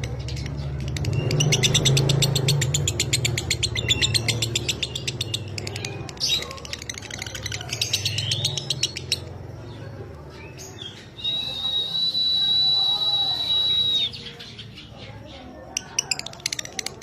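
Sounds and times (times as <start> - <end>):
lovebird chattering high chirps: 0.1 - 9.4.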